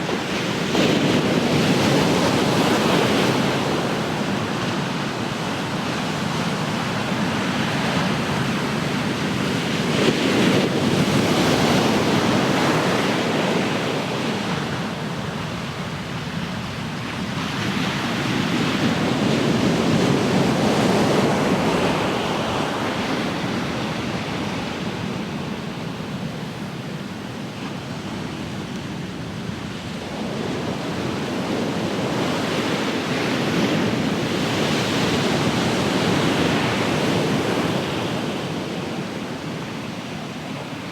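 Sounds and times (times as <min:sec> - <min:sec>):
ocean waves breaking on shore: 0:00.0 - 0:40.9.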